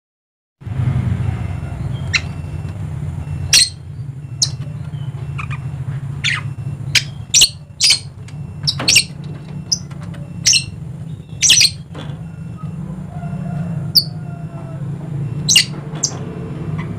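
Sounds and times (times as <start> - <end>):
parrot squawking: 2.0 - 2.5, 3.4 - 3.8, 4.4 - 4.6, 5.3 - 11.8, 13.9 - 14.6, 15.4 - 16.2.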